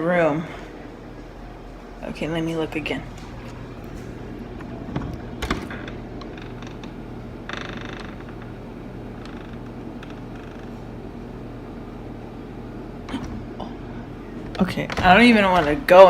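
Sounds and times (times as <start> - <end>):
low hum: 0.0 - 16.0
door creaking: 3.0 - 11.6, 13.0 - 16.0.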